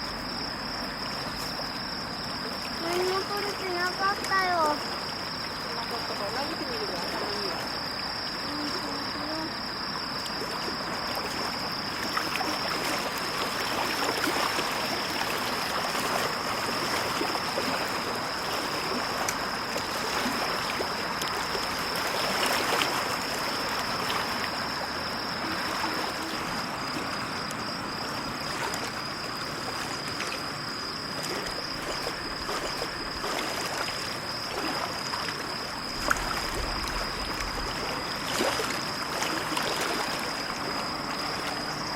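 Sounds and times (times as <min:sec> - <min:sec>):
waves lapping at shore: 0:00.0 - 0:41.9.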